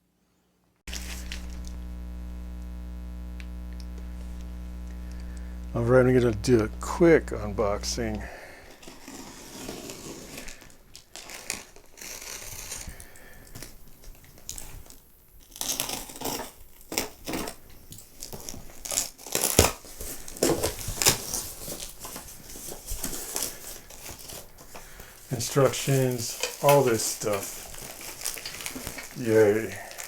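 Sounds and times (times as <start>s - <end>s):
packaging crinkling and tearing: 0.9s - 2.0s, 7.7s - 30.0s.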